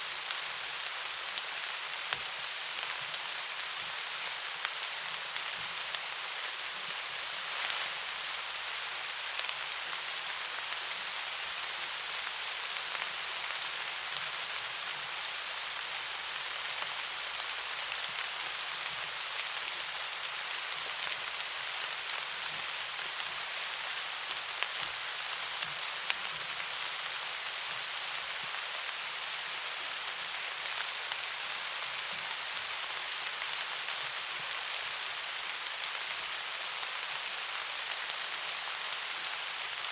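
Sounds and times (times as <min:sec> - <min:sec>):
rain hissing: 0:00.1 - 0:11.6.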